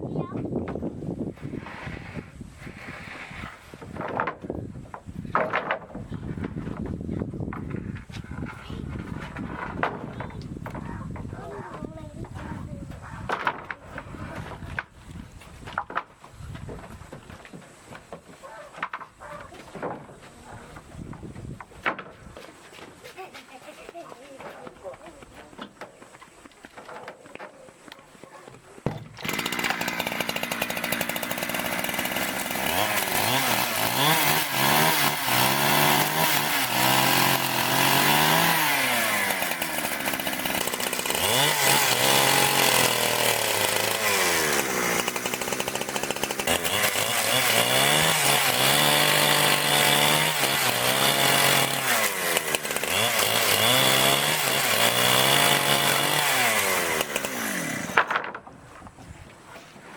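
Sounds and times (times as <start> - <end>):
chainsaw cutting wood: 0.5 - 11.4, 12.2 - 23.3, 28.8 - 58.5.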